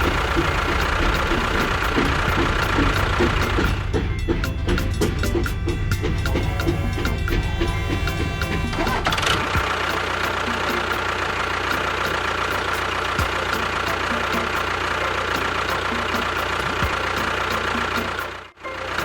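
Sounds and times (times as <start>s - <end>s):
faint regular ticking: 0.0s - 14.8s
motor idling with whine: 0.0s - 19.0s.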